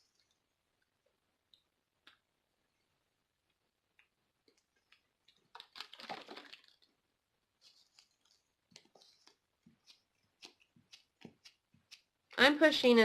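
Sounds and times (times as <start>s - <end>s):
crinkling rustle: 4.5s - 7.0s, 7.6s - 12.0s.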